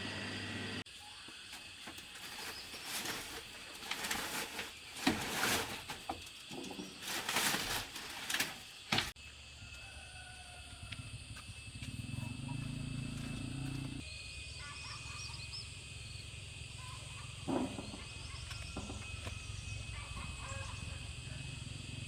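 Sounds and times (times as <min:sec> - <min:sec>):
foliage rustling: 0:01.6 - 0:09.2.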